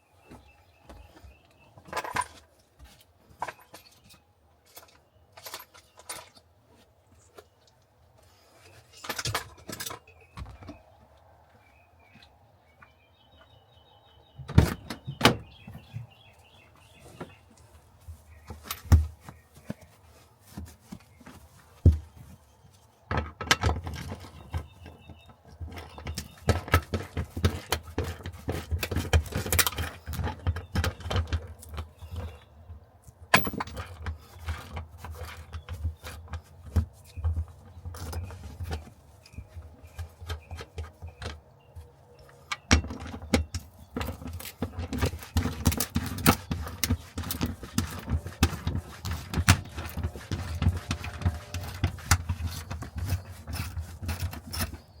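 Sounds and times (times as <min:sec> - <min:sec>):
tools and parts clinking: 0:01.8 - 0:02.7, 0:03.3 - 0:06.5, 0:08.6 - 0:10.8, 0:18.4 - 0:19.9, 0:23.0 - 0:32.4, 0:33.2 - 0:55.0.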